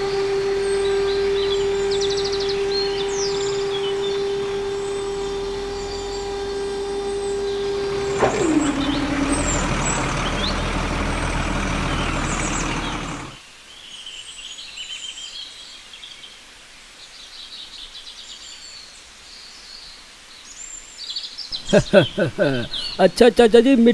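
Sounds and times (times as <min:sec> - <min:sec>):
bird chirps: 0:00.0 - 0:13.4, 0:21.4 - 0:23.3
small electric motor whining: 0:00.0 - 0:13.4
soil tipping out: 0:00.0 - 0:13.4.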